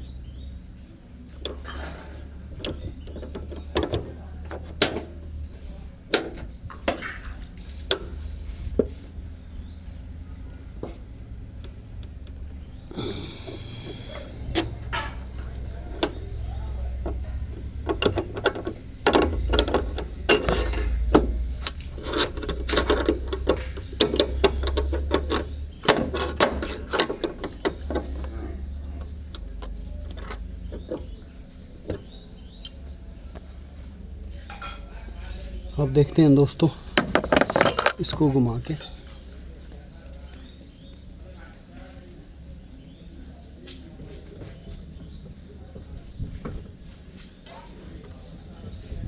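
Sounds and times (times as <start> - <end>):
ratchet clicking and clinking: 13.8 - 31.2, 36.4 - 38.4.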